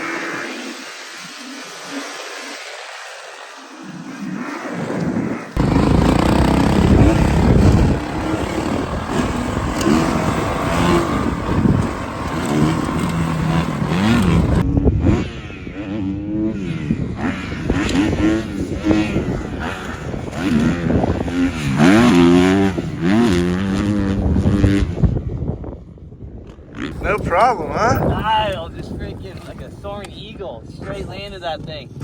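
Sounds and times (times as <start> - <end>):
dirt bike engine revving: 5.6 - 25.1.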